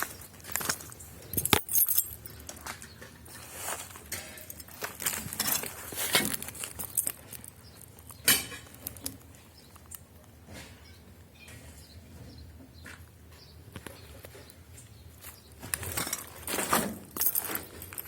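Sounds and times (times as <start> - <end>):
light clinks of handled objects: 0.0 - 9.2.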